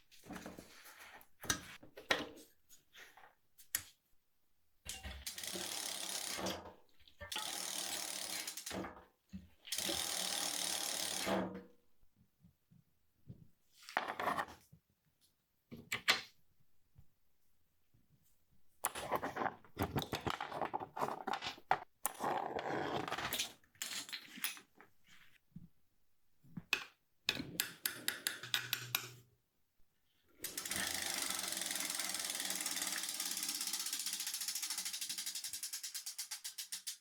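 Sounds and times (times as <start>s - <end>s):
bicycle freehub clicking: 5.3s - 6.4s, 7.3s - 8.8s, 9.8s - 11.3s, 30.4s - 37.0s.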